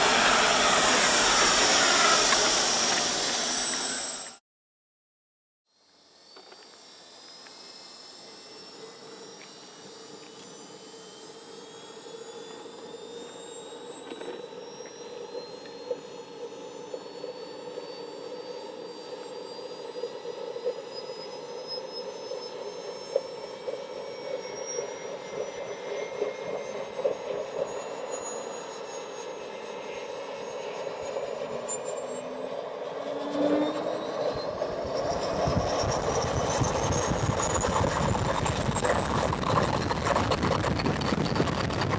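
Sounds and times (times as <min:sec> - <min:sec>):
model jet turbine whine: 0:00.0 - 0:04.4, 0:05.7 - 0:41.9
rushing jet exhaust: 0:00.0 - 0:04.4.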